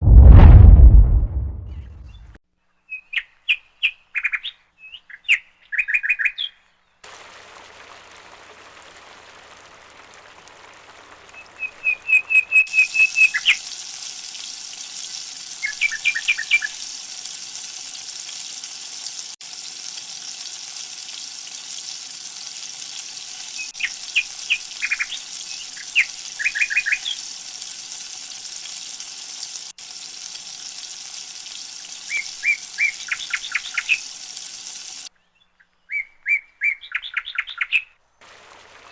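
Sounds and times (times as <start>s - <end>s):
birds chirping: 11.3s - 13.6s, 32.1s - 34.1s.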